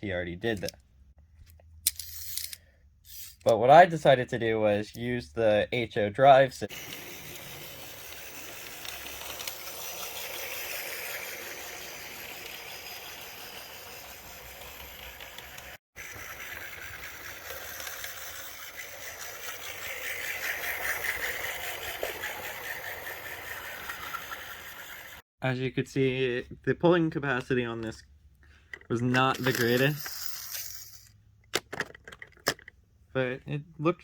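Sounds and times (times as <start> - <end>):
toy train motor whirring: 1.8 - 3.5, 6.7 - 25.2, 28.7 - 31.2.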